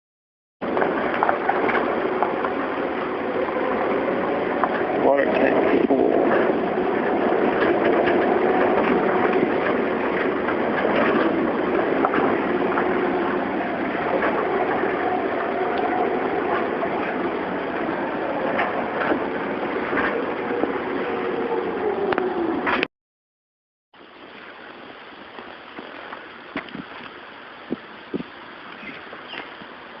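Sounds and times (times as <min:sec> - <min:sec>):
road noise: 0:00.6 - 0:22.9
vehicle engine hum: 0:00.6 - 0:22.9.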